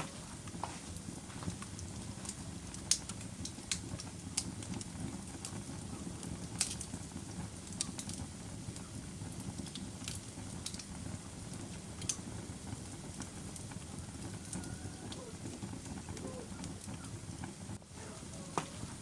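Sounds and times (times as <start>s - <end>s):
fireplace fire crackling: 0.0s - 19.0s
sharp pops and snaps: 1.4s - 5.6s, 6.6s - 6.9s, 7.7s - 8.2s, 9.6s - 11.0s, 12.0s - 12.2s.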